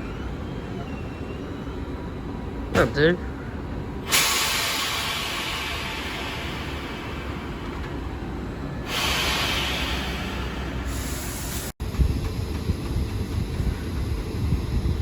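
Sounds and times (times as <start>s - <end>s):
locomotive engine rumbling: 0.0s - 15.0s
air release hiss: 4.1s - 7.3s, 8.9s - 11.7s.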